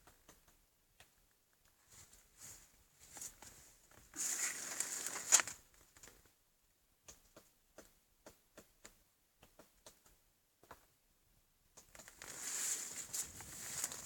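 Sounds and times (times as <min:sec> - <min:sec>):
scratchy rustle: 0:01.9 - 0:05.6, 0:12.0 - 0:14.0.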